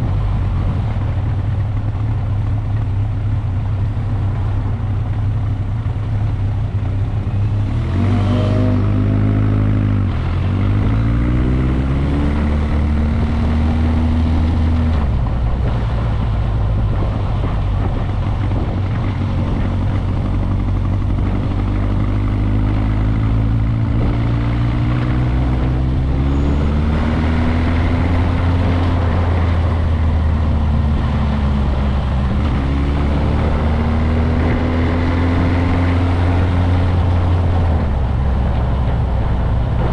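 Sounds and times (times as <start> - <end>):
motorcycle engine shifting gears: 0.0 - 39.9
wind and road noise: 0.0 - 39.9.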